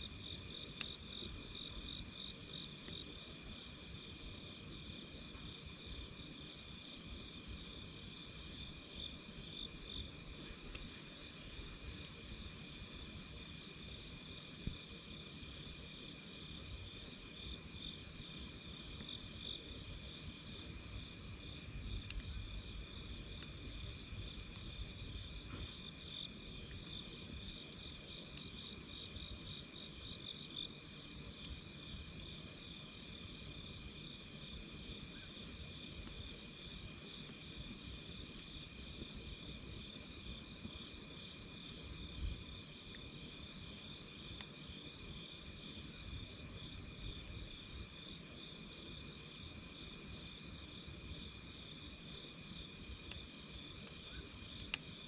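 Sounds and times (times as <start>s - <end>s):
insects chirping: 0.0s - 55.0s
faint ticks: 0.8s - 1.7s, 21.9s - 22.5s.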